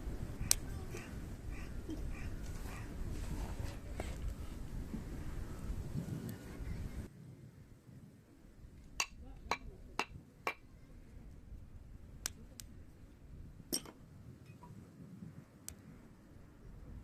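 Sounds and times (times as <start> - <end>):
firewood crackling and popping: 0.0 - 3.2, 8.7 - 14.1.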